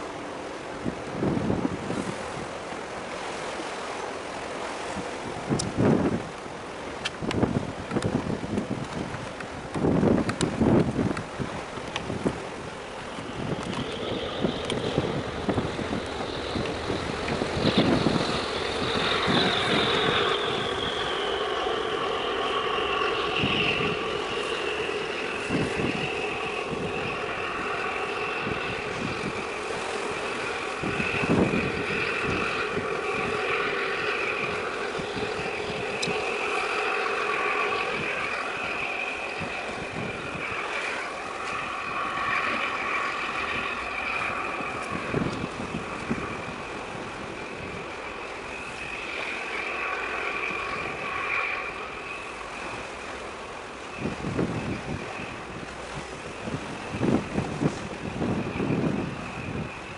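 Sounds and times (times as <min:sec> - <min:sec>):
wind on microphone: 0:00.0 - 0:59.9
mechanical hum with high whine: 0:13.0 - 0:59.9.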